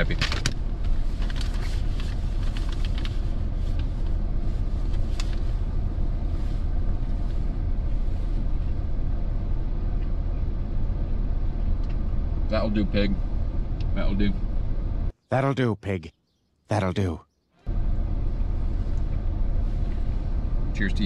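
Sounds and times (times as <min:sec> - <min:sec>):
truck engine idling: 0:17.7 - 0:21.0.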